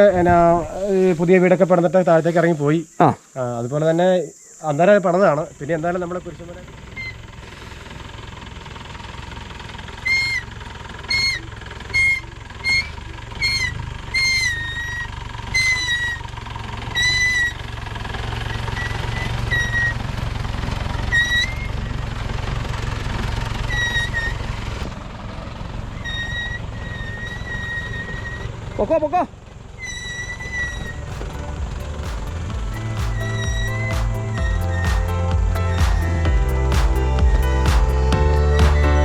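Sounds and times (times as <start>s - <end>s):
steady low rumble: 0.0s - 1.6s, 30.8s - 39.0s
short high whistled notes: 32.7s - 39.0s.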